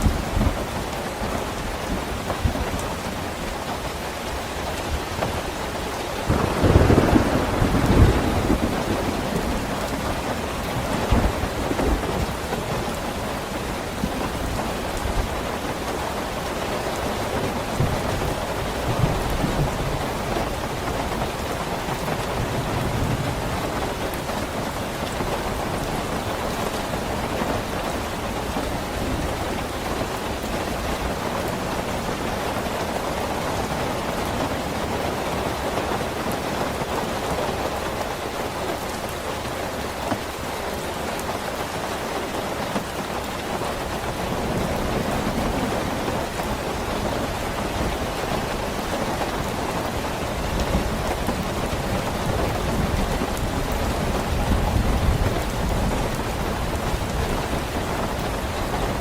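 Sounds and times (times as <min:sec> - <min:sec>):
steady rain: 0:00.0 - 0:59.0
thunder rumbling: 0:06.2 - 0:15.5.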